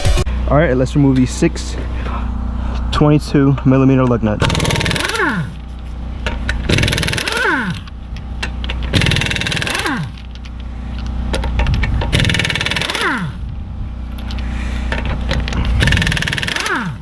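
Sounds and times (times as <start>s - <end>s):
low hum: 0.0s - 17.0s
impact wrench hammering: 4.4s - 5.6s, 6.2s - 10.4s, 11.3s - 13.4s, 14.9s - 17.0s.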